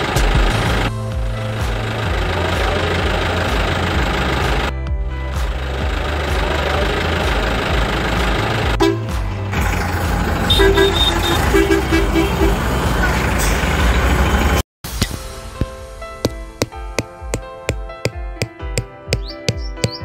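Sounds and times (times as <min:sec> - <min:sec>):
truck engine running: 0:00.0 - 0:14.6
short horn toots: 0:10.5 - 0:12.6.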